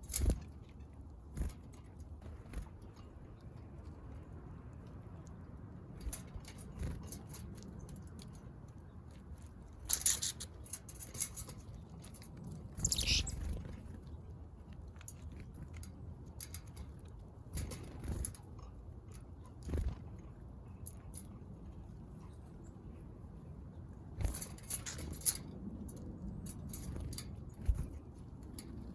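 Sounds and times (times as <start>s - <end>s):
wing flutters and rustles: 0.0s - 0.6s, 9.8s - 14.0s, 24.2s - 25.6s, 26.4s - 28.9s
birds pecking at seed: 9.2s - 13.8s.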